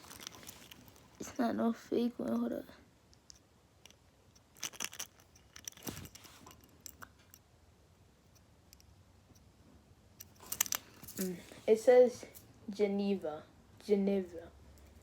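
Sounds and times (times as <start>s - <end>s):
small objects clicking and rustling: 0.0s - 1.4s, 3.1s - 7.4s, 10.2s - 11.6s.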